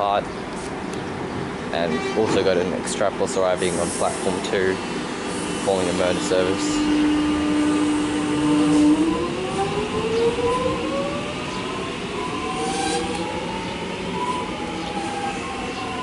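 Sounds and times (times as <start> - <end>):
electric train motor whine: 4.6 - 16.0.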